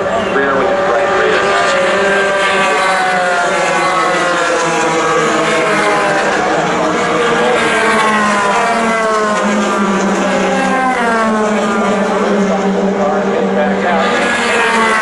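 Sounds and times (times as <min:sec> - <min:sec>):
race cars passing at speed: 0:00.0 - 0:15.0.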